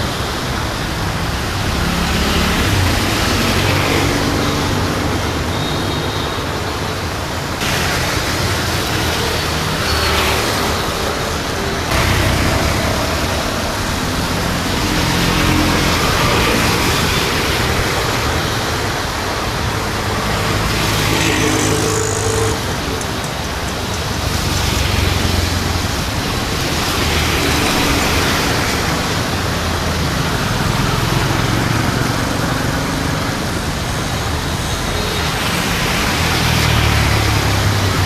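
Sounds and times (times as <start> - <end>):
rain hiss: 0.0 - 38.0
vehicles passing on wet road: 0.0 - 38.0.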